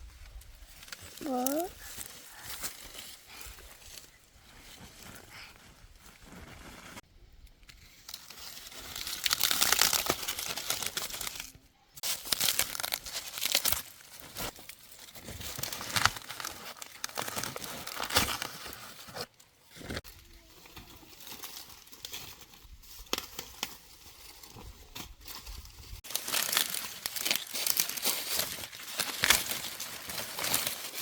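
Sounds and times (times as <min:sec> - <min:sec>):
dry material crinkling and tearing: 0:08.0 - 0:18.8, 0:26.0 - 0:31.0.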